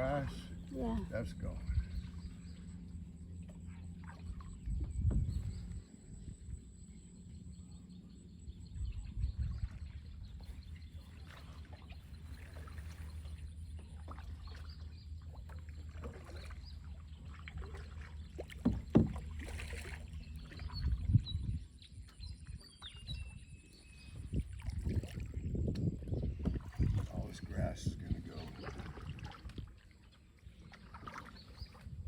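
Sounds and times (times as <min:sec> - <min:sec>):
boat motor humming: 0:00.0 - 0:32.0
knocks against boat: 0:04.8 - 0:05.4, 0:18.4 - 0:19.8
birds chirping faintly: 0:25.3 - 0:32.0.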